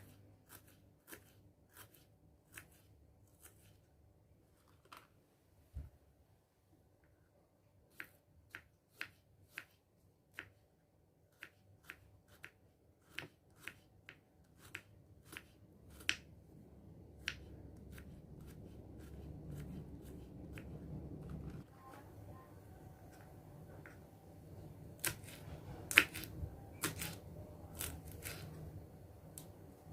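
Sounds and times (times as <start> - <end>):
low hum: 18.2 - 27.7.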